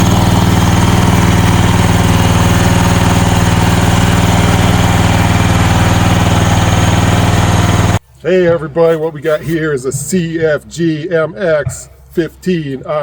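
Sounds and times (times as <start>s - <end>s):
small excavator engine running: 0.0s - 10.6s.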